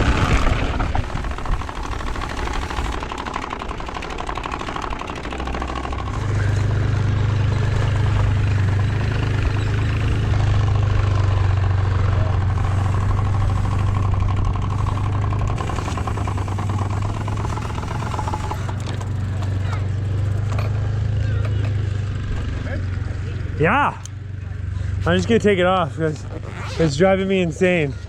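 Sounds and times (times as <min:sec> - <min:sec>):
bicycle spoke card buzzing: 0:00.0 - 0:20.7.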